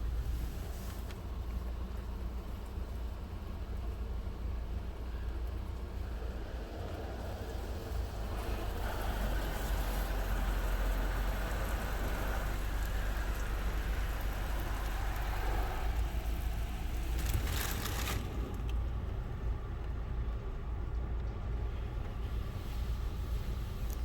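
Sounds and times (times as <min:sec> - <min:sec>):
low machine rumble: 0:00.0 - 0:24.0
water spray hissing onto car: 0:00.1 - 0:01.7, 0:06.7 - 0:18.6, 0:22.2 - 0:24.0.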